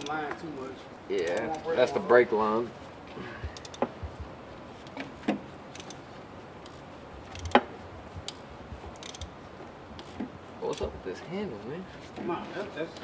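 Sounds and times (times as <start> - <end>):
metal tools clinking on engine parts: 0.0 - 0.2.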